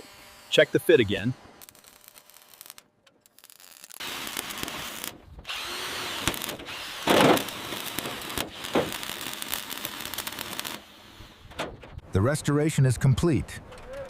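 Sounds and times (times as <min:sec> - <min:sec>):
power tool running: 0:00.0 - 0:02.6, 0:04.0 - 0:11.4.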